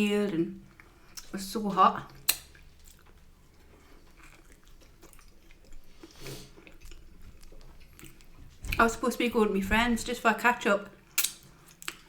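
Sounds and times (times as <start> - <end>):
chewing food: 0.6 - 9.0.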